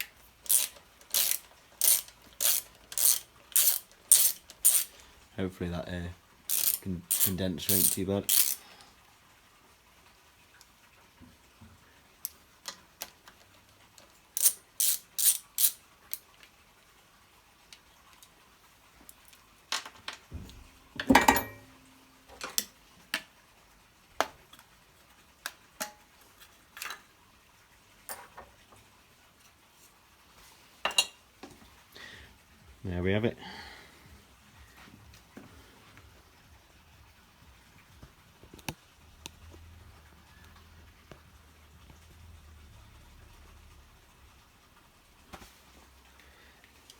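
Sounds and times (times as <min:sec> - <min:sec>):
metal tools clicking and clinking: 0:00.0 - 0:05.0, 0:06.5 - 0:08.6, 0:14.4 - 0:16.2, 0:21.0 - 0:21.8.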